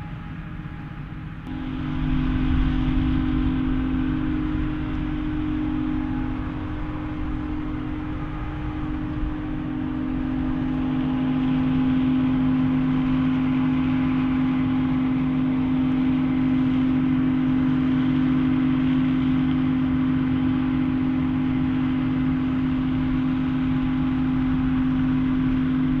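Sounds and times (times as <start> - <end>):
farm machinery droning: 0.0 - 26.0.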